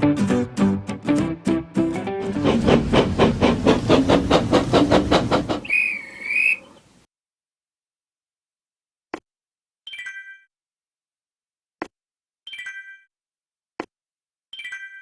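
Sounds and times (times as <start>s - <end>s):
toy train whistle toot: 5.6s - 6.8s.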